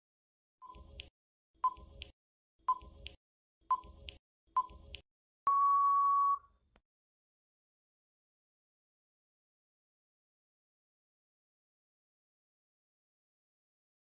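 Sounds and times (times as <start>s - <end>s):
countdown timer beeps: 2.7s - 6.4s.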